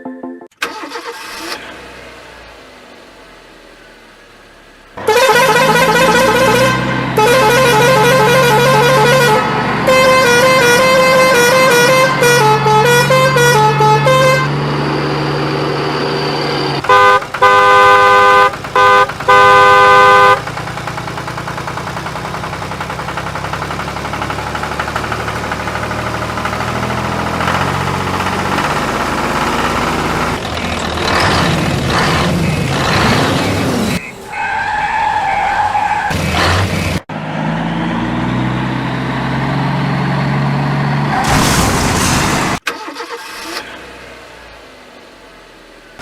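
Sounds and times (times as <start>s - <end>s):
engine running: 0.5s - 34.3s
multi-tone horn blasts: 5.0s - 14.6s, 16.8s - 20.4s
vehicle horn warbling melody: 5.0s - 14.6s, 16.8s - 20.4s.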